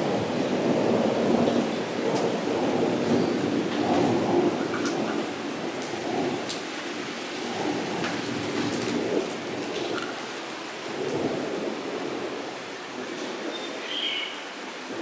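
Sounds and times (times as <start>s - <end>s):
rain on puddle: 0.0s - 15.0s
bird chirp: 13.6s - 14.4s.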